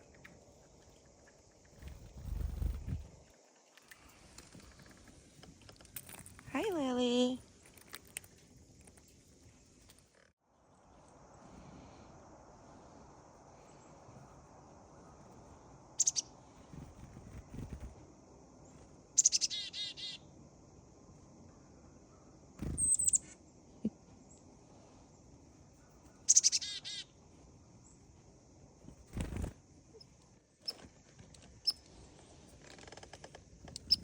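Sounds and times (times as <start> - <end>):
chickadee calling: 16.0 - 16.3, 19.2 - 20.2, 26.2 - 27.1.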